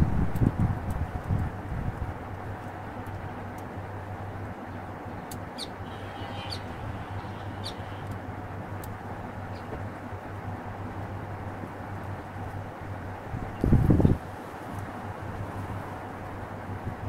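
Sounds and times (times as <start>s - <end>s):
constant low hum: 0.0s - 17.0s
high bird chirps: 5.6s - 8.1s.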